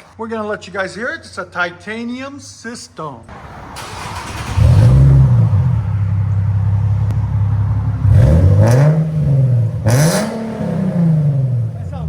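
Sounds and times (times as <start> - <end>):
car engine revving and idling: 3.3 - 12.0.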